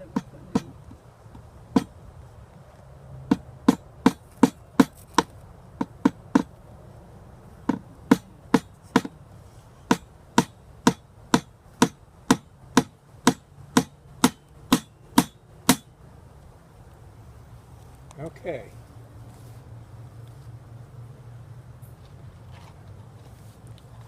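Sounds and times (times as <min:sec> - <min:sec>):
hammer tapping on wood: 0:00.1 - 0:01.9, 0:03.3 - 0:06.5, 0:07.7 - 0:09.1.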